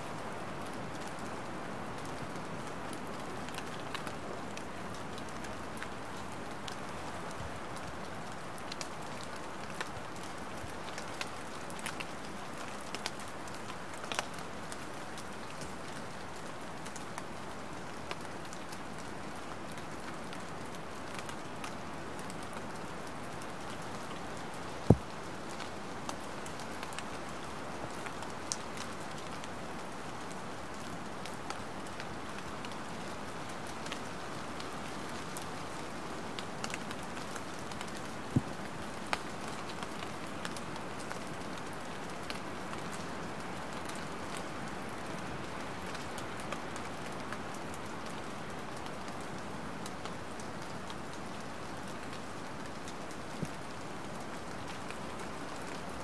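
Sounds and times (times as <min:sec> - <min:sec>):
light rain falling: 0:00.0 - 0:56.0.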